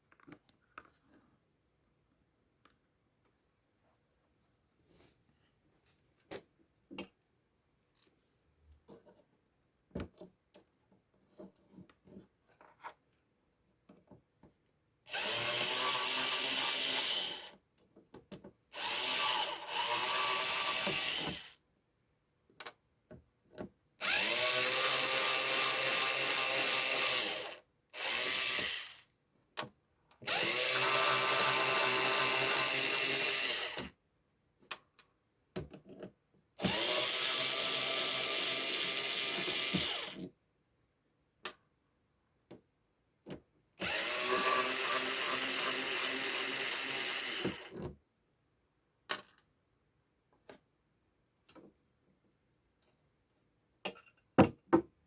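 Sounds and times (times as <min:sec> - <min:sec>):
handheld power tool motor: 0:15.1 - 0:17.6, 0:18.8 - 0:21.6, 0:24.0 - 0:29.0, 0:30.2 - 0:33.9, 0:36.6 - 0:40.2, 0:43.8 - 0:47.8.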